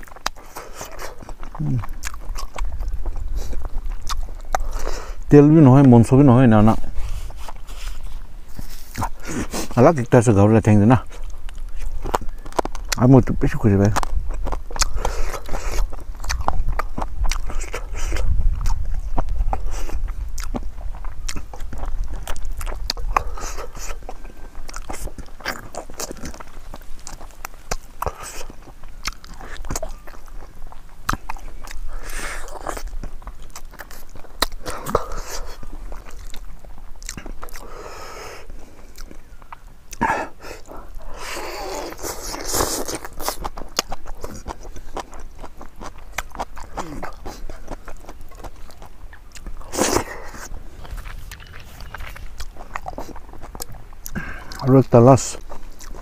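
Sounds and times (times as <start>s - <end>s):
mouth clicks: 0.0s - 6.0s, 38.9s - 56.0s
person chewing and biting: 0.0s - 10.2s, 10.9s - 56.0s.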